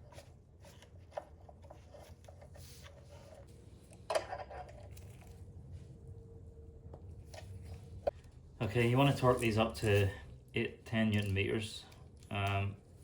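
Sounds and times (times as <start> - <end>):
tools and bolts handled: 10.9 - 12.6.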